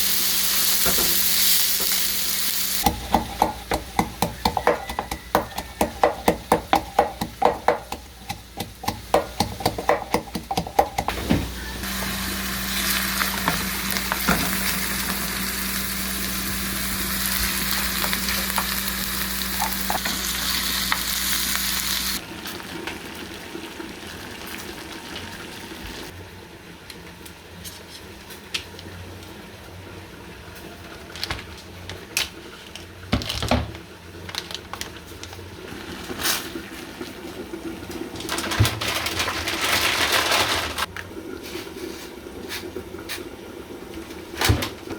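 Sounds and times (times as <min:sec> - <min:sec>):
food sizzling in a pan: 0:00.0 - 0:26.2.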